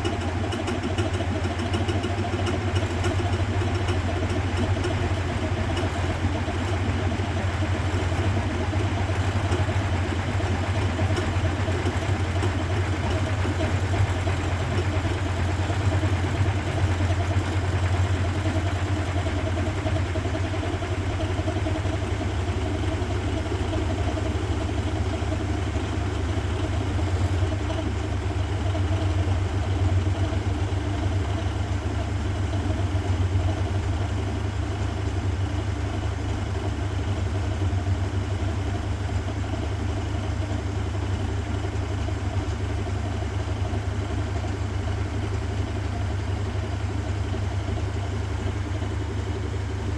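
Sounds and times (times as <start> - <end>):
washing machine running: 0.0 - 49.9.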